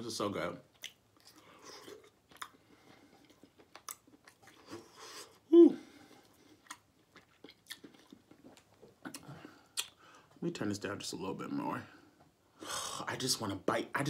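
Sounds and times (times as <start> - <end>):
person chewing meat: 0.7 - 5.4, 6.0 - 10.0
hum of enjoyment: 5.5 - 6.2
wet mouth clicks and smacks: 6.6 - 10.0.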